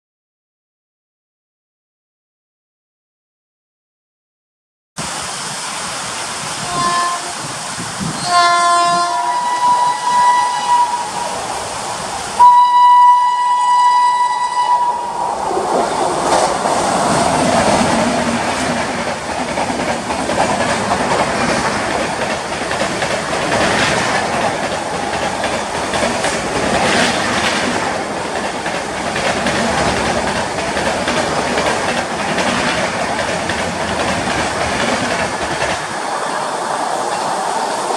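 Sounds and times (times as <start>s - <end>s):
train rushing past: 5.0s - 37.9s
locomotive horn blasts: 6.6s - 7.4s, 8.2s - 11.3s, 12.4s - 15.2s
wheels clattering over rail joints: 15.7s - 37.6s.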